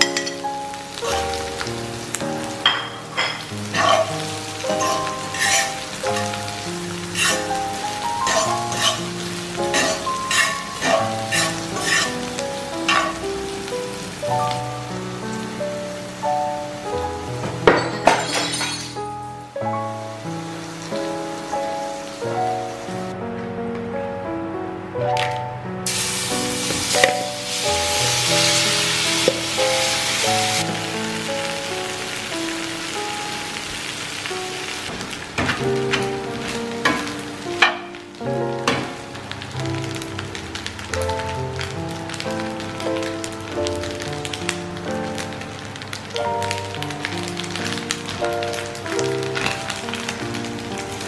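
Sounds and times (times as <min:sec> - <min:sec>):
vegetables sizzling in oil: 0:00.0 - 0:23.1, 0:25.9 - 0:51.0
background music: 0:00.0 - 0:51.0
fork stirring in skillet: 0:03.7 - 0:04.1, 0:04.7 - 0:06.4, 0:07.2 - 0:07.5, 0:08.2 - 0:09.0, 0:09.7 - 0:12.1.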